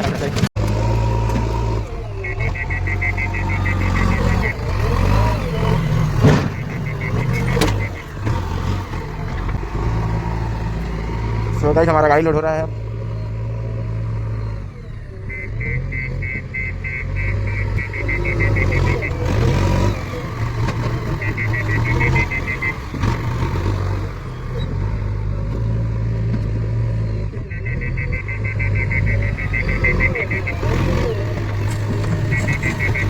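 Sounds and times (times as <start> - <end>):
diesel engine under load: 0.0 - 33.0
rapid high electronic beeping: 2.2 - 9.2, 14.4 - 24.0, 27.6 - 33.0.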